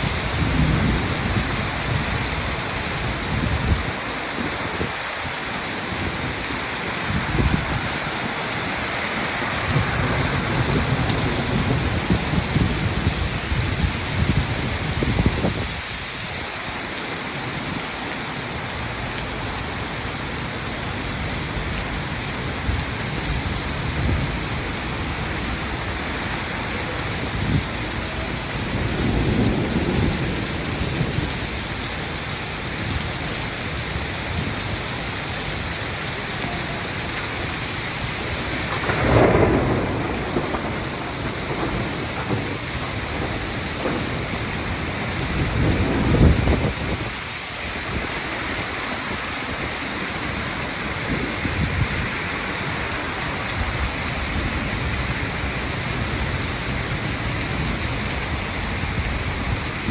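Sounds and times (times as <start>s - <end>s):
thunder rolling: 0.0s - 5.0s, 5.8s - 15.8s, 22.5s - 31.7s, 38.0s - 47.3s
heavy rain pouring: 0.0s - 59.9s.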